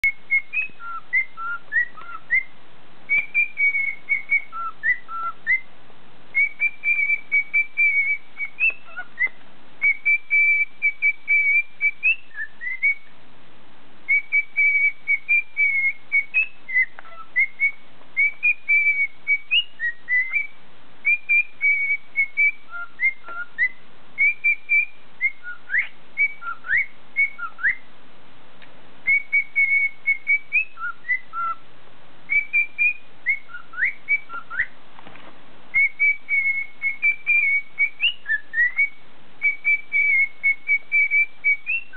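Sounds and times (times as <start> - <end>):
bird whistling a tune: 0.0 - 2.5, 3.1 - 5.7, 6.3 - 13.1, 14.1 - 27.9, 29.0 - 31.6, 32.3 - 34.8, 35.7 - 41.9.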